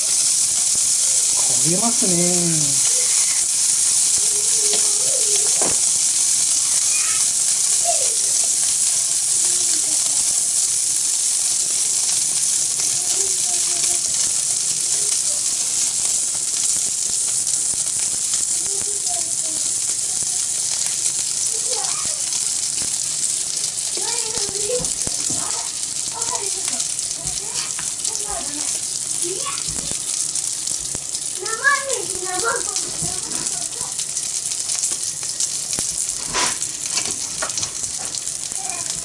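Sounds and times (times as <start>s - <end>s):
batter sizzling on griddle: 0.0s - 39.0s.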